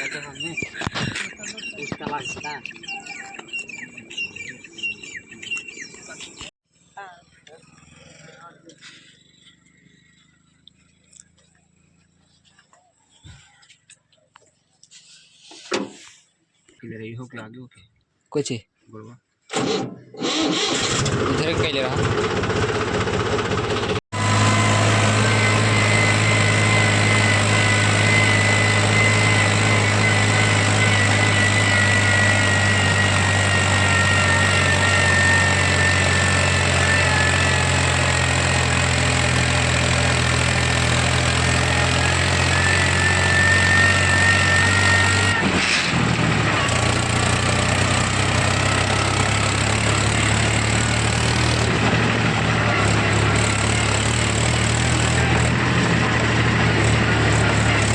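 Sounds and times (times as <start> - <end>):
tractor diesel engine running: 19.5 - 57.9.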